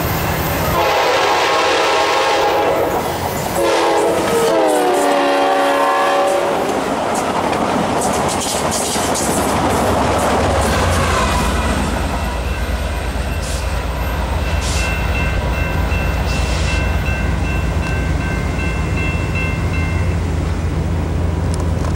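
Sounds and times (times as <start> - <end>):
passenger train rumbling: 0.0 - 21.9
crossing signal bells ringing: 11.8 - 20.6.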